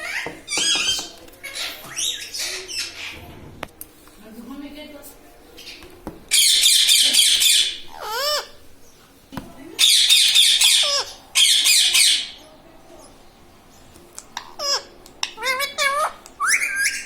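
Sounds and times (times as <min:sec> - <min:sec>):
parrot screeching: 0:06.3 - 0:08.6, 0:09.8 - 0:12.4, 0:14.6 - 0:17.0.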